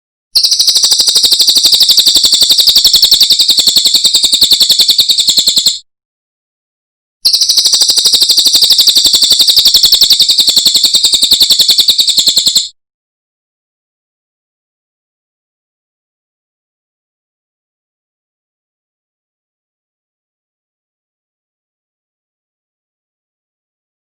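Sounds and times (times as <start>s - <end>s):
songbird rapid trill: 0.4s - 5.8s, 7.2s - 12.7s.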